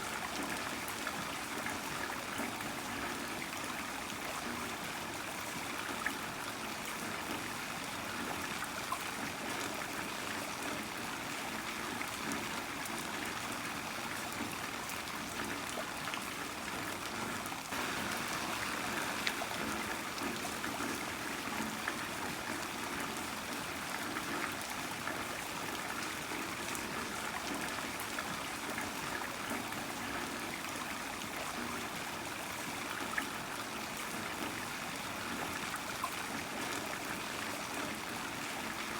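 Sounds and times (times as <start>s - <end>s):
heavy rain falling: 17.7s - 23.3s.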